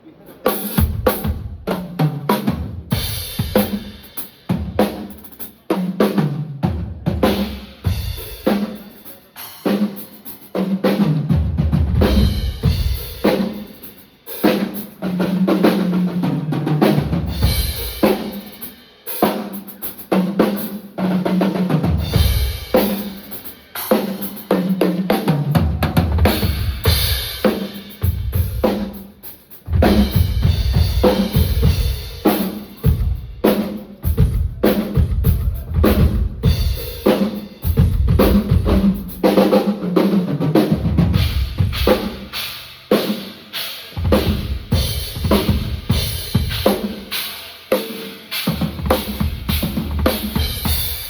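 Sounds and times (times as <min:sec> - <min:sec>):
snare drum with rimshots: 0:00.4 - 0:51.0
bass drum: 0:29.7 - 0:33.4, 0:37.7 - 0:39.2, 0:44.0 - 0:47.0.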